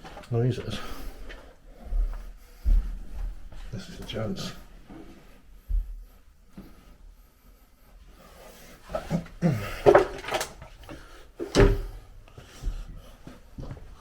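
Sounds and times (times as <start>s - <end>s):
wooden door creaking: 9.0s - 12.0s
door thump: 11.5s - 12.0s.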